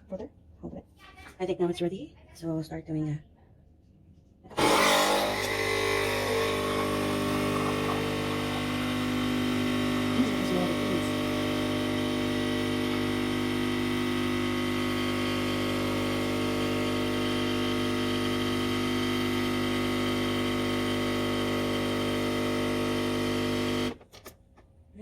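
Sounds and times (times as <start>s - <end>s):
coffee machine pump humming: 4.6s - 24.1s.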